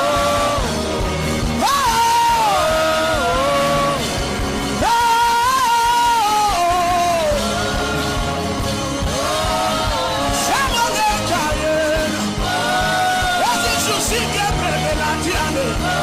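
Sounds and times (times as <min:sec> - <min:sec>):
person singing long sliding notes: 0:00.0 - 0:08.5
steady drum beat: 0:00.0 - 0:16.0.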